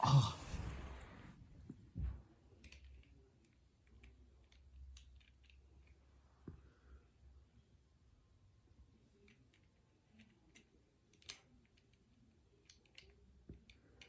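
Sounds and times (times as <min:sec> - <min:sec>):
plastic toy parts clicking: 0:09.2 - 0:12.0, 0:12.6 - 0:14.0.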